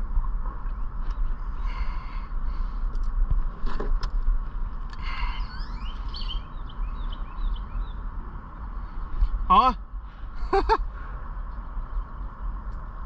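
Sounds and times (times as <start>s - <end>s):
low wind rumble on microphone: 0.0s - 13.0s.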